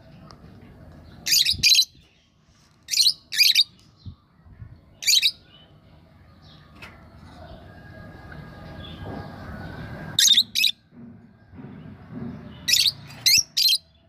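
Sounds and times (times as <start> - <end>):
lovebirds shrill chirping calls: 1.2 - 3.9, 5.0 - 5.6, 10.2 - 10.8, 12.6 - 13.9.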